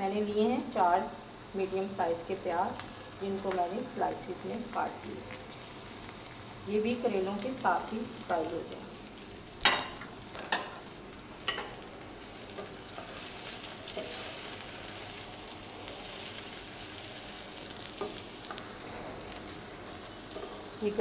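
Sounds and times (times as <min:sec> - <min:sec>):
vegetables frying in oil: 0:00.0 - 0:21.0.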